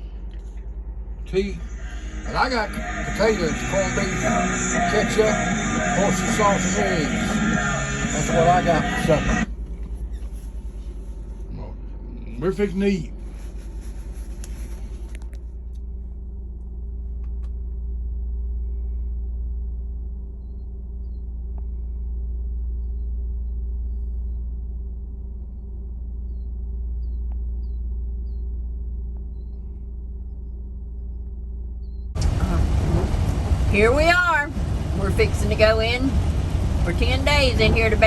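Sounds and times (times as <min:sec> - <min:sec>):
vehicle engine drone: 0:00.0 - 0:38.0
road noise: 0:01.2 - 0:11.6, 0:32.2 - 0:38.0.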